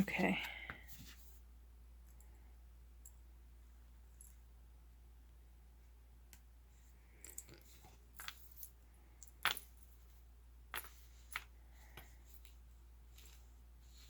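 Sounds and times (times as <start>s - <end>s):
craft pieces clicking and tapping: 8.2s - 9.8s.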